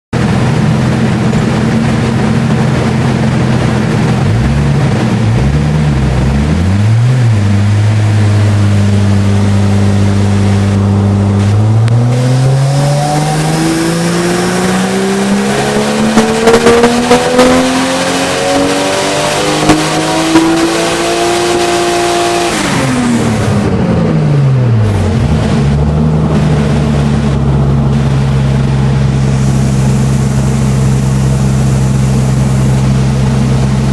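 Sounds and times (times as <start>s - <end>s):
car engine revving on a dyno: 0.2s - 33.9s.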